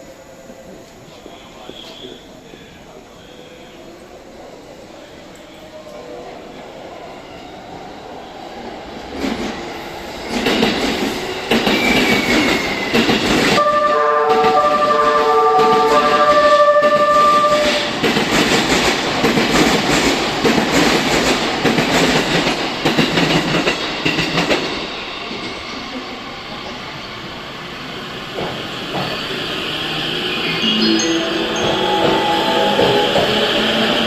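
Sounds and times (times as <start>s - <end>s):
train horn melody: 13.6s - 17.9s, 30.6s - 34.0s
train wheels clattering: 14.4s - 25.6s, 31.6s - 34.0s.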